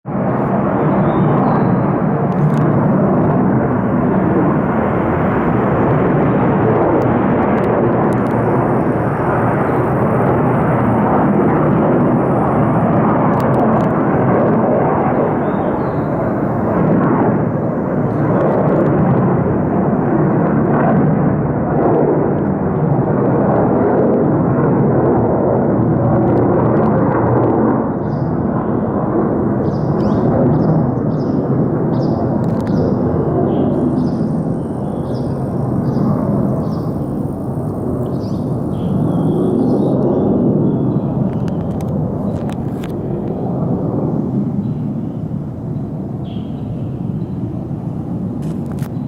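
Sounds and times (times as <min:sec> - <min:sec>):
jet engines roaring: 0:00.0 - 0:49.0.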